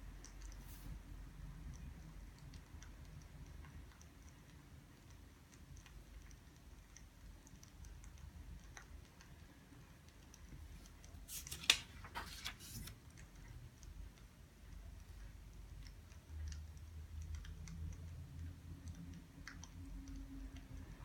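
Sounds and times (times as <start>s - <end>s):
faint ticks and clicks: 0.0s - 11.5s, 12.8s - 21.0s
paper rustle: 11.2s - 13.0s.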